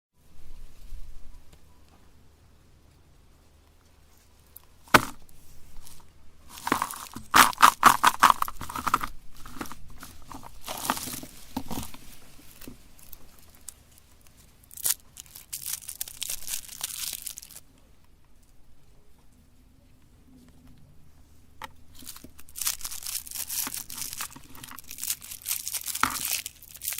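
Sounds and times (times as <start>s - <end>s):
plastic wrappers crinkling: 4.6s - 17.6s, 21.9s - 26.9s
packaging tearing open: 6.5s - 12.0s, 14.8s - 17.6s, 22.0s - 26.9s.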